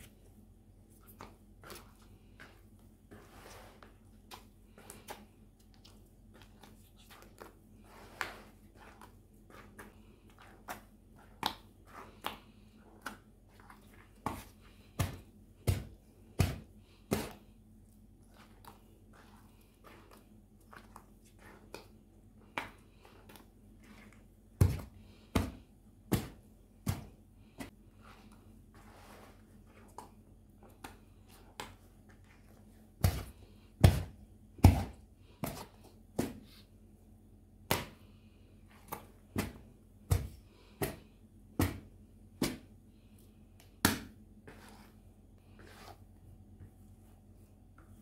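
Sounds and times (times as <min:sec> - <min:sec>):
heavy thumps on dough: 0:14.2 - 0:17.4, 0:24.6 - 0:27.7.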